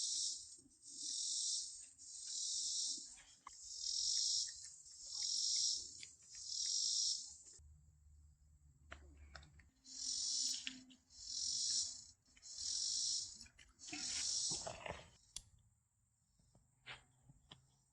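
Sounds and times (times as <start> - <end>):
insects buzzing in pulsing chorus: 0.0 - 7.6, 9.8 - 14.7.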